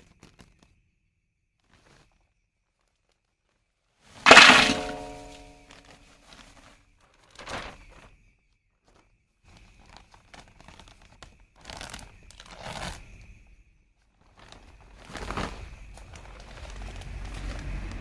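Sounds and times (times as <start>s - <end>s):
plastic packet crinkling and tearing: 9.8s - 13.0s.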